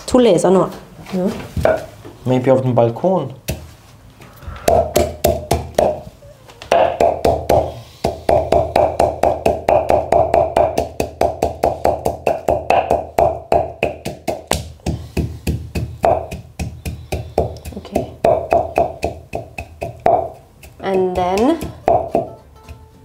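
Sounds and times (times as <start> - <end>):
pestle pounding in a mortar: 4.6 - 6.1, 6.7 - 23.0.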